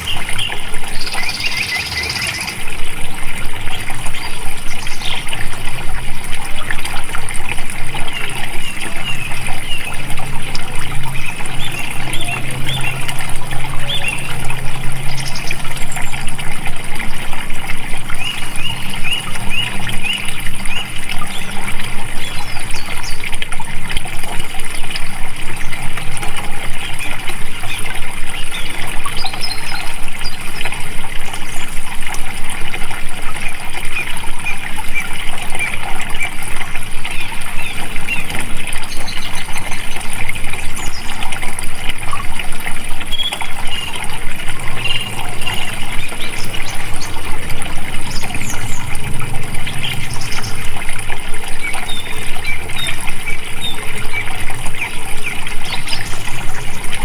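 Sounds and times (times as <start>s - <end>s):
small birds chirping: 0.0s - 2.6s, 7.8s - 23.4s, 25.5s - 30.9s, 43.0s - 57.0s
water flowing: 0.0s - 57.0s.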